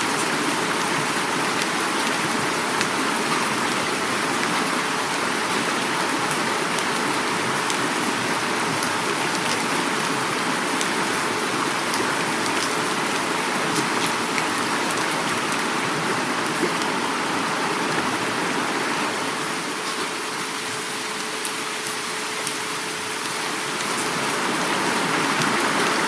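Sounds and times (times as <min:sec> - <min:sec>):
flowing river water: 0:00.0 - 0:26.0
heavy rain falling: 0:00.0 - 0:26.0.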